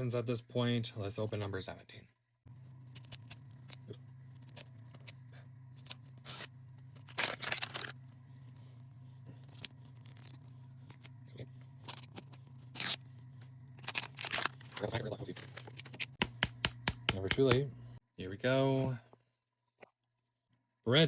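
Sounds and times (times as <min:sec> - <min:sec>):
steady low hum: 0:00.0 - 0:21.0
plastic crinkling: 0:07.0 - 0:08.0, 0:13.8 - 0:16.2.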